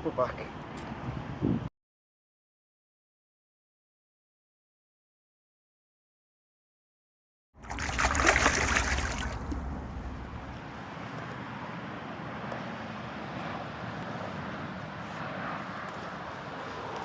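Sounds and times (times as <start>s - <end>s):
wind noise on microphone: 1.0s - 1.7s, 7.7s - 10.8s
fish splashing in water: 7.6s - 10.8s.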